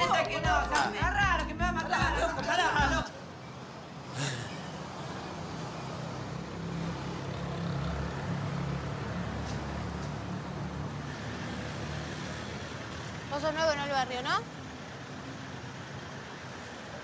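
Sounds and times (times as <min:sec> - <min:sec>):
traffic rumble: 0:00.0 - 0:16.5.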